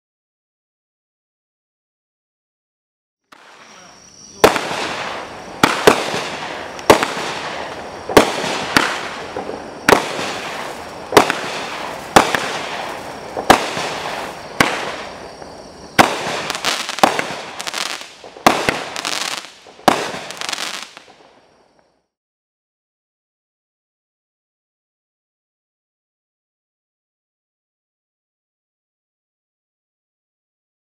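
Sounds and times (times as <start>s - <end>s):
fireworks bangs: 3.3s - 21.4s
fireworks crackling and fizzing: 3.3s - 21.8s.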